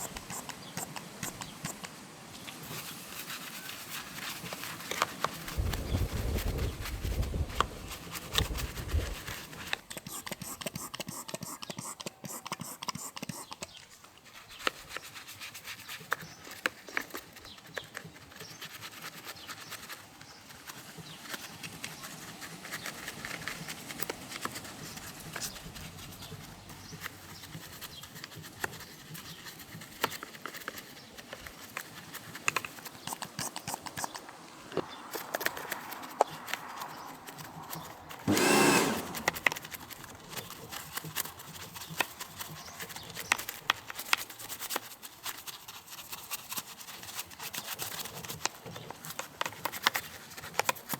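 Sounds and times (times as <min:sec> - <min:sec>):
brush scrubbing: 0:00.0 - 0:50.9
short loud rush of noise: 0:38.3 - 0:39.6.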